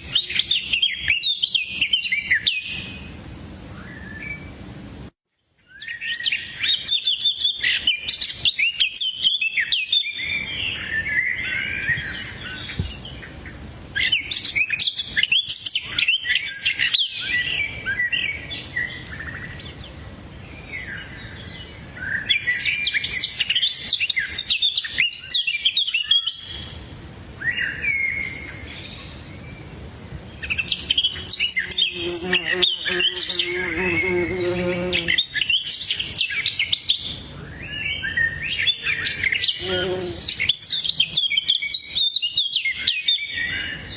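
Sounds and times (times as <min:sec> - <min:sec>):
birds chirping: 0:27.5 - 0:43.9.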